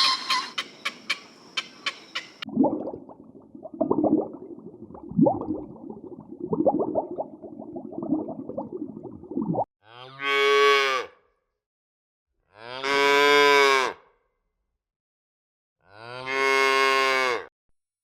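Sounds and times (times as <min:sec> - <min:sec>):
loud cow moo: 0:09.9 - 0:11.1, 0:12.5 - 0:14.0, 0:15.9 - 0:17.5.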